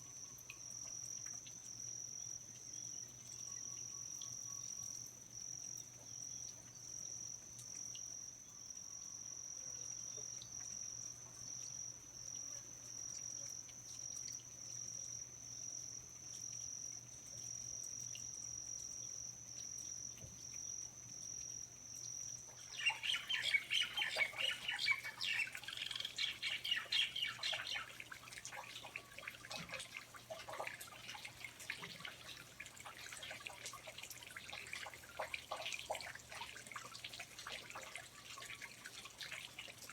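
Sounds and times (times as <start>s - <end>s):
high-pitched insect trill: 0.0s - 30.0s
drips and clicks: 15.9s - 39.9s
birds chirping: 22.6s - 29.0s.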